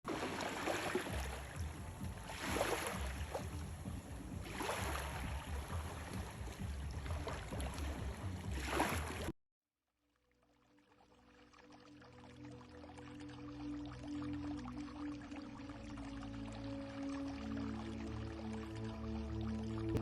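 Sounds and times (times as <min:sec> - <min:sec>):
water washing in surges: 0:00.1 - 0:09.3
wind rumble on microphone: 0:01.0 - 0:09.3.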